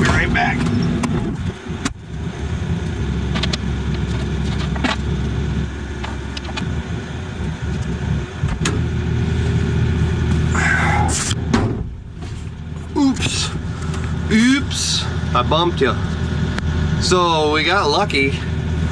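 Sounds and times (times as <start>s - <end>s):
excavator diesel engine running: 0.0s - 18.9s
sharp knocks: 11.5s - 12.0s.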